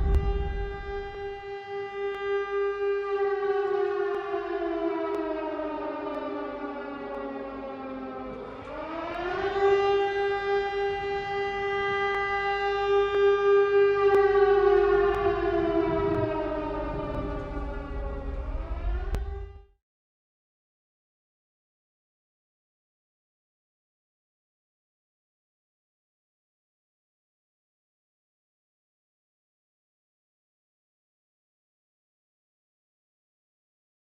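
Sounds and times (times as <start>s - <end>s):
siren wailing: 0.0s - 19.8s.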